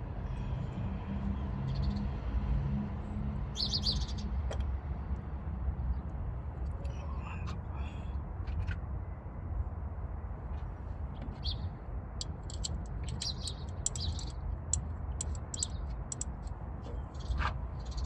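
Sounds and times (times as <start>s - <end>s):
small bird chirping: 12.2s - 16.4s.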